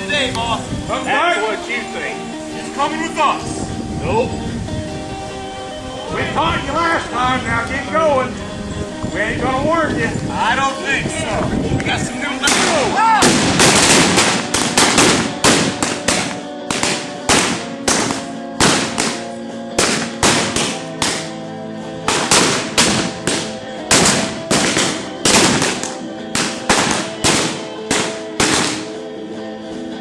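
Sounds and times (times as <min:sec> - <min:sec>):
background music with held notes: 0:00.0 - 0:30.0
rapid gunshots: 0:12.5 - 0:21.3, 0:22.1 - 0:29.0.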